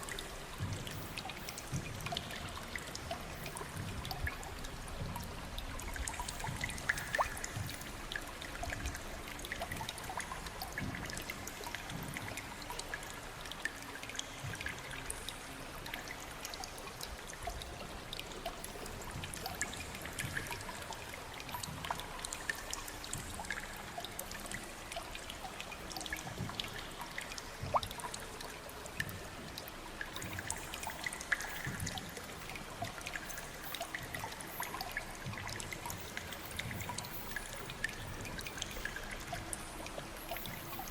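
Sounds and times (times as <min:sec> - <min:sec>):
water drips and plinks: 0:00.0 - 0:40.9
water trickling and splashing: 0:00.0 - 0:40.9.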